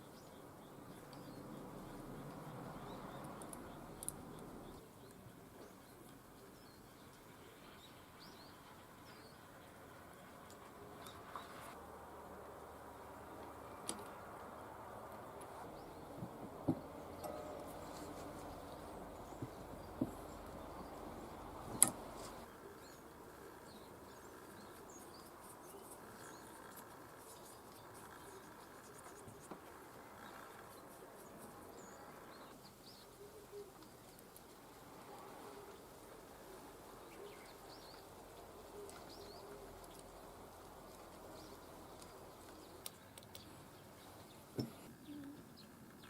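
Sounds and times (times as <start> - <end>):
birds chirping: 0.0 - 11.8, 12.9 - 46.0
low steady background: 0.0 - 46.0
sharp click: 21.8 - 22.0
faint bird chirps: 31.3 - 34.2, 43.3 - 45.8.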